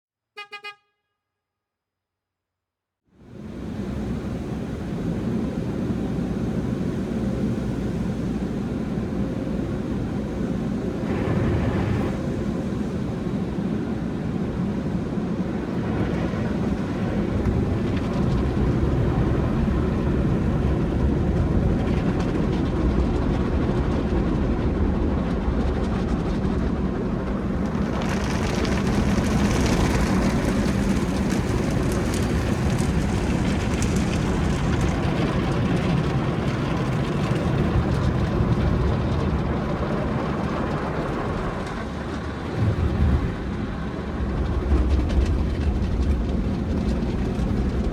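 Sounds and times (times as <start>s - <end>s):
car wash equipment rumble: 3.2s - 47.9s
water spraying over car: 27.4s - 39.2s.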